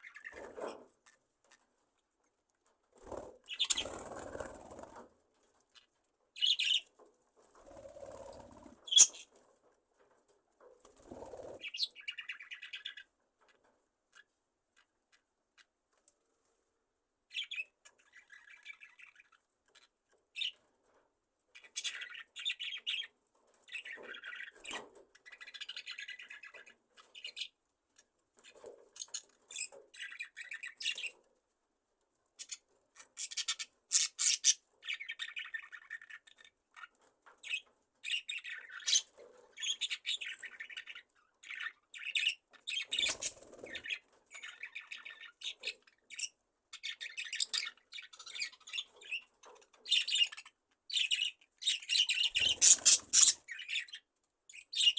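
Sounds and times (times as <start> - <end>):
budgerigars chattering: 8.9 - 9.3, 49.9 - 54.0.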